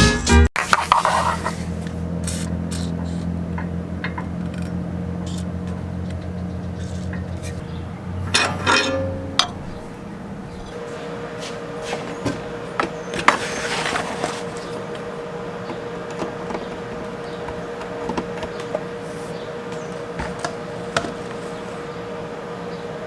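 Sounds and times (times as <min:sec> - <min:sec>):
steady hum: 0:00.6 - 0:23.0
hand tools clinking on metal: 0:01.8 - 0:22.2.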